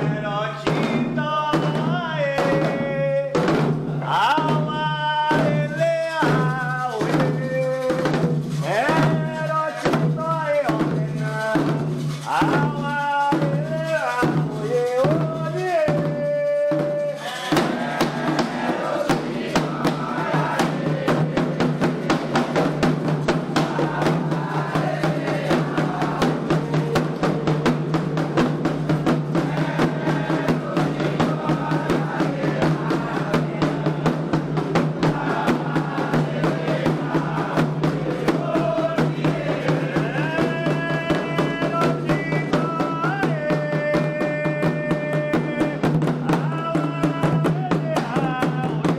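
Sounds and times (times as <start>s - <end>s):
fast hand drumming: 0.0s - 48.9s
group singing: 0.0s - 48.9s
person singing solo: 40.0s - 48.9s.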